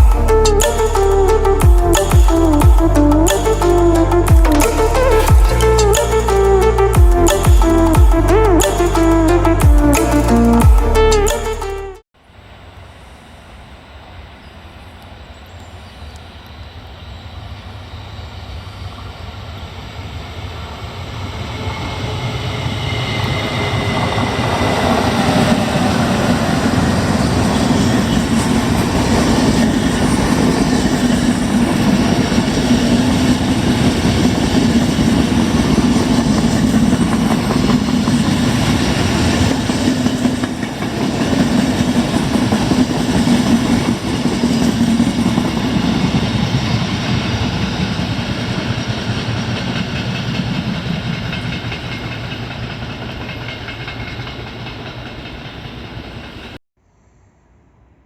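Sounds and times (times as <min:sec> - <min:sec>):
train wheels on rails: 0:16.0 - 0:56.6.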